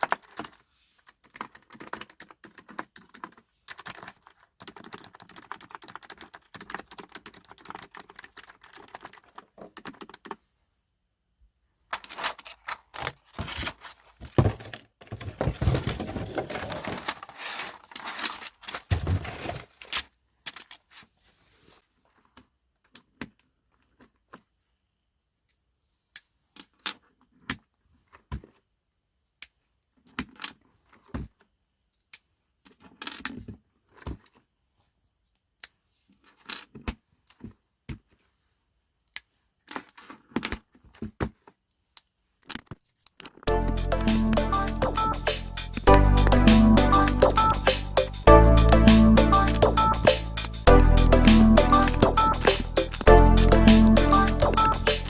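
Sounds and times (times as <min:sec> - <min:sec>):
typing on computer keyboard: 0:00.0 - 0:10.4, 0:44.0 - 0:55.0.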